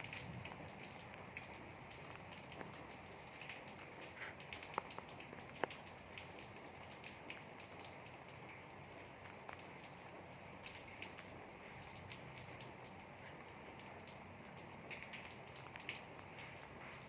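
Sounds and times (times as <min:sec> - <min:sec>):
faint rain falling: 0:00.0 - 0:17.0
sharp drips: 0:00.0 - 0:17.0
drops ticking: 0:00.1 - 0:17.0.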